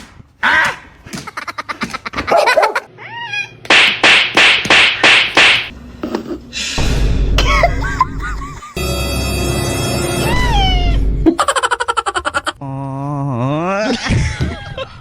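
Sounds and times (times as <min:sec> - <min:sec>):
low rumble: 0:06.8 - 0:08.6.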